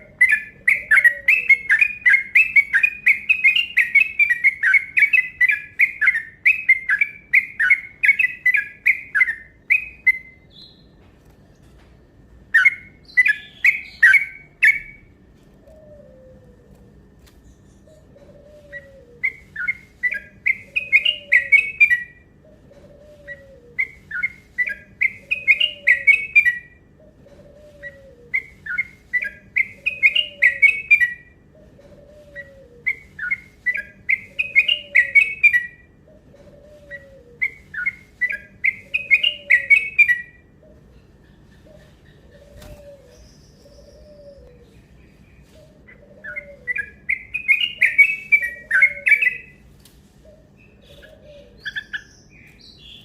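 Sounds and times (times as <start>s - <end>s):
bird song chirpy phrases: 12.5s - 15.2s, 17.4s - 27.2s, 28.3s - 49.6s, 50.3s - 53.0s.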